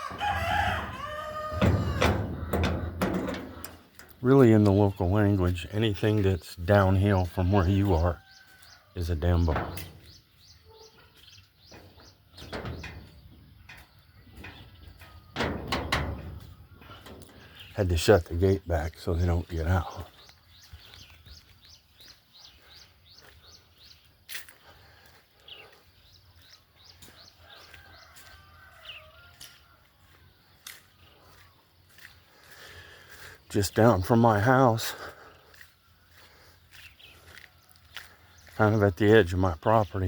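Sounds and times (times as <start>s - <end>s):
knocks and scrapes: 0.0s - 4.8s, 9.1s - 10.4s, 11.6s - 17.8s
small birds chirping: 0.0s - 40.0s.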